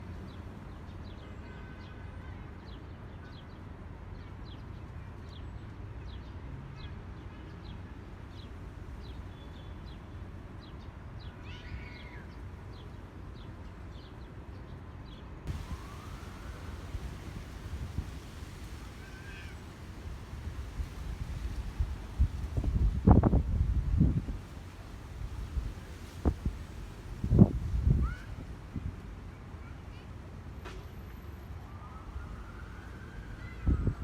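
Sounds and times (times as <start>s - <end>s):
wind buffeting microphone: 15.5s - 19.0s, 19.8s - 29.0s, 33.5s - 34.0s.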